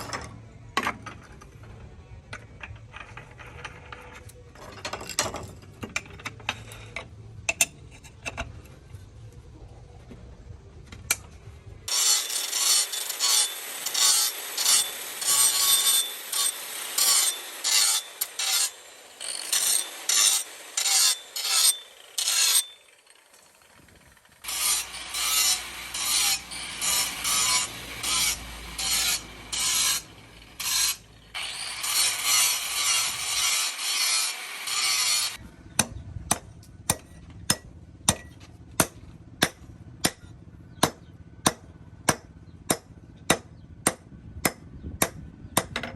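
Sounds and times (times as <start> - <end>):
file rasping on steel blade: 11.9 - 22.8, 24.4 - 35.4.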